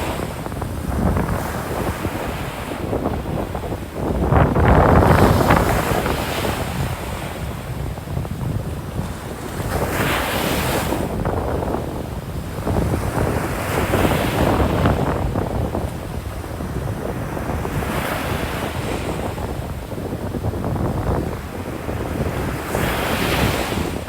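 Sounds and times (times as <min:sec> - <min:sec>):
surf breaking on beach: 0:00.0 - 0:24.0
wind rumbling on microphone: 0:00.0 - 0:24.0.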